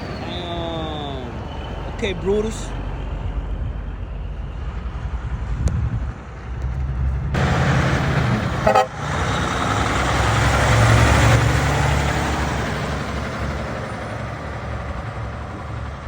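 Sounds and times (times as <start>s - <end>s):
truck driving past: 0.0s - 16.0s
truck horn toot: 8.3s - 9.7s.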